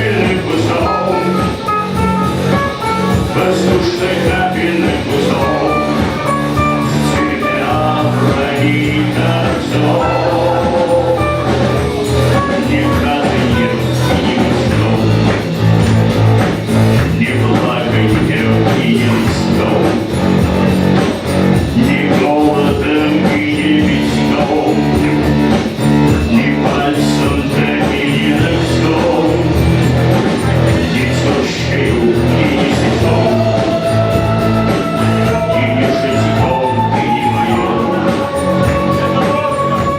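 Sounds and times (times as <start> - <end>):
person singing: 0.0 - 15.9, 16.9 - 39.9
bass guitar: 0.0 - 39.9
live rock band playing: 0.0 - 39.9.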